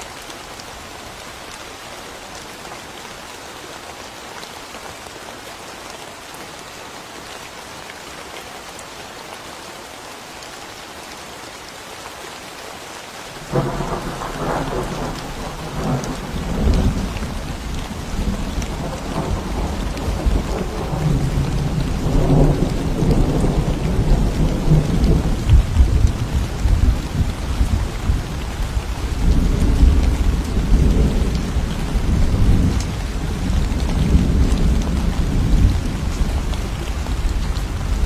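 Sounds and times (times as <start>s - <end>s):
steady rain falling: 0.0s - 38.0s
thunder rumbling: 13.4s - 38.0s.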